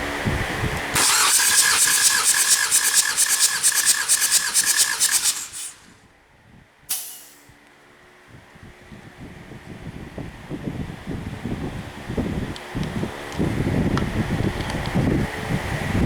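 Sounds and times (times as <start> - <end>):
diesel engine cranking: 0.9 - 6.0
rapid hissing puffs: 1.0 - 6.0
sharp hiss of air: 1.0 - 6.0, 6.9 - 7.5
starter motor whine: 1.0 - 6.0.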